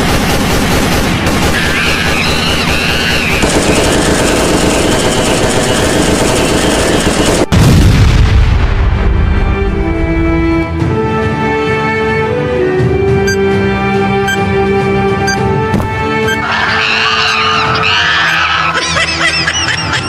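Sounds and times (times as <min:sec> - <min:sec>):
rapid automatic gunfire: 0:00.0 - 0:07.6
heavy explosion rumble: 0:07.3 - 0:10.2.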